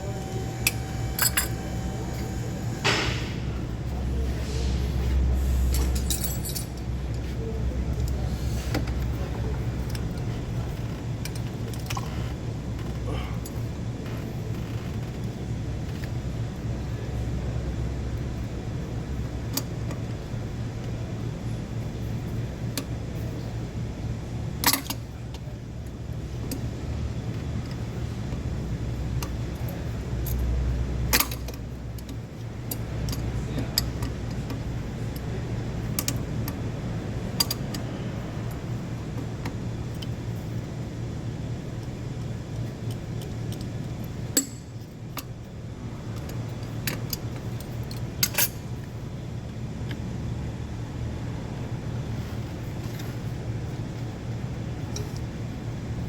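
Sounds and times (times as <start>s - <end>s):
steady low hum: 0.0s - 56.0s
metallic clinks of hand tools: 5.7s - 6.8s.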